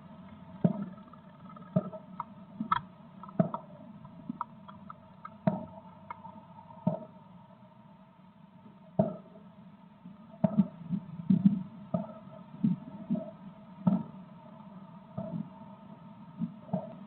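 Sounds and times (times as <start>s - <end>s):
steady electrical hum: 0.0s - 16.8s.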